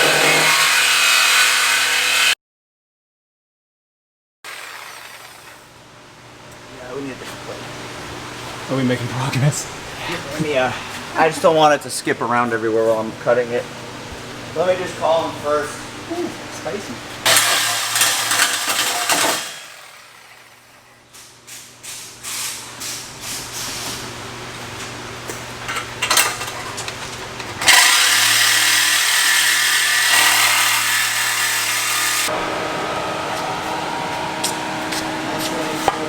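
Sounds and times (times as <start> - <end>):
power tool cutting metal pipe: 0.0 - 2.4, 4.5 - 5.7, 17.3 - 20.8, 27.6 - 34.8.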